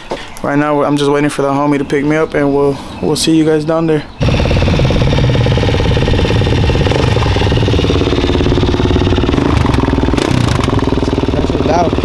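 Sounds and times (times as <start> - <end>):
dirt bike engine running: 4.2 - 12.0.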